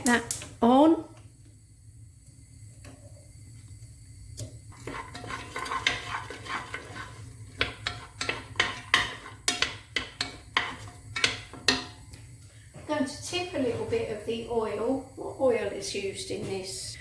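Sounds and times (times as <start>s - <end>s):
utensil clattering against pan: 4.8s - 12.0s.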